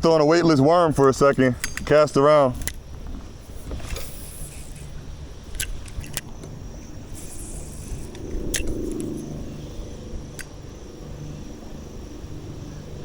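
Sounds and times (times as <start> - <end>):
fishing line hissing: 2.6 - 13.0
fishing reel clicks: 3.9 - 6.4, 7.1 - 9.3, 10.3 - 10.8
low rumble: 5.0 - 13.0.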